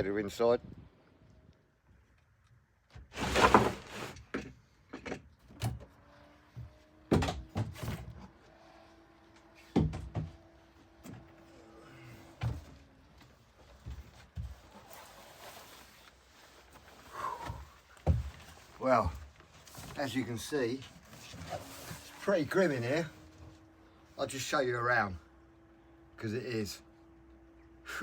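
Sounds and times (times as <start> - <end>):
knocks and thuds on a boat: 9.8 - 10.4, 17.4 - 19.3.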